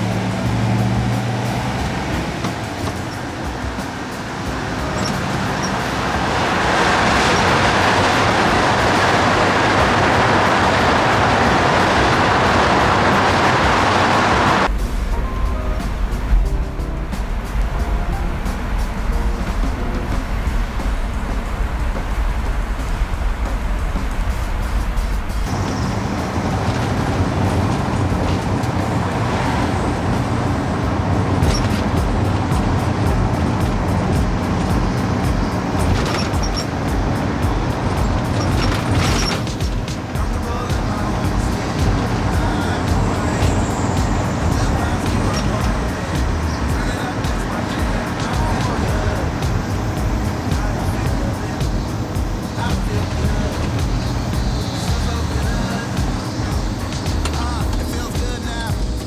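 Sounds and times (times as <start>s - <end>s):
car engine running: 0.0s - 59.0s
road and wind rush: 0.0s - 59.0s
low rumble: 4.5s - 59.0s.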